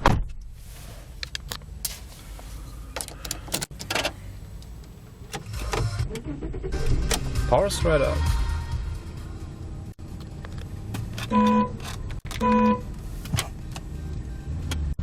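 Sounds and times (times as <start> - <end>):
car engine idling: 1.6 - 15.0.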